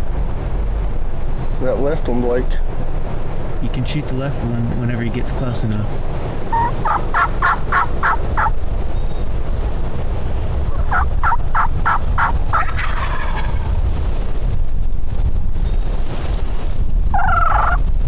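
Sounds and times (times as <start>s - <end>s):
wind rumble: 0.0s - 18.0s
turkey gobble: 6.5s - 8.5s, 10.7s - 13.7s, 17.2s - 17.8s
turkey yelps: 6.5s - 8.5s, 10.7s - 13.6s, 17.2s - 17.8s.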